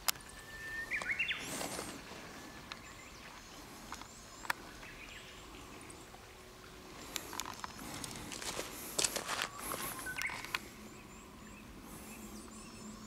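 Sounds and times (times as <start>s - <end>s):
rustle of dry leaf litter: 0.0s - 6.2s, 6.9s - 10.8s
bird whistling: 0.3s - 1.5s, 9.4s - 13.0s.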